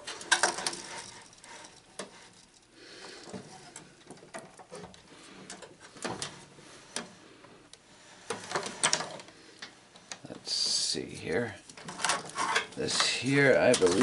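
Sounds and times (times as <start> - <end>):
metal parts and tools clicking: 0.0 - 2.6, 11.7 - 14.0.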